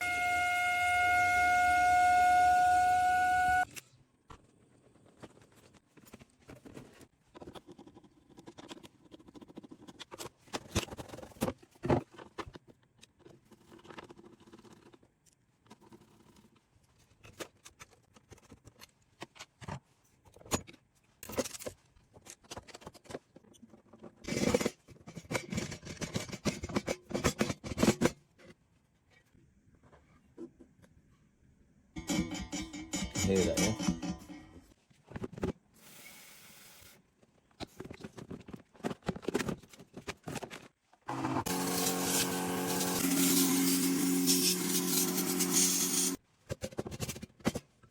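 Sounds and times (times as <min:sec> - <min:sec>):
boiler whistling: 0:00.0 - 0:03.6.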